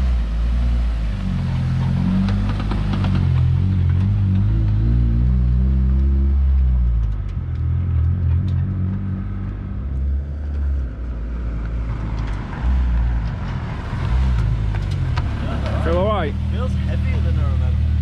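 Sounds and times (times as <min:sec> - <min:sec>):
car engine rumbling: 0:00.0 - 0:18.0.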